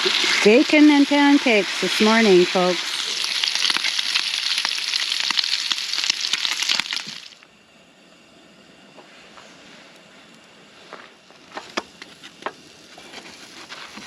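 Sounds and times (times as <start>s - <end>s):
bacon sizzling in a pan: 0.0s - 7.4s.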